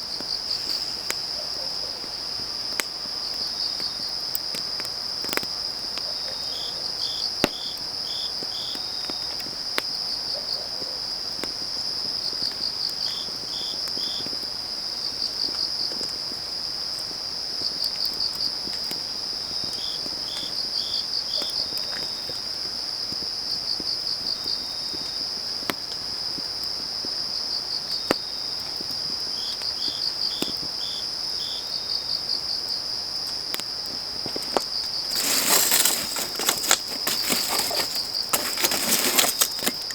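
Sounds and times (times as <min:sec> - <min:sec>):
wood fire crackling: 0:00.0 - 0:05.5, 0:33.8 - 0:39.9
crickets trilling and chirping: 0:00.0 - 0:39.9.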